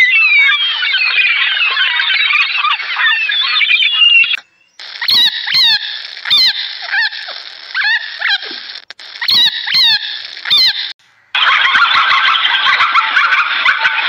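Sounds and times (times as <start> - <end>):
dense busy noise: 0.0 - 14.0
geese honking: 9.2 - 14.0.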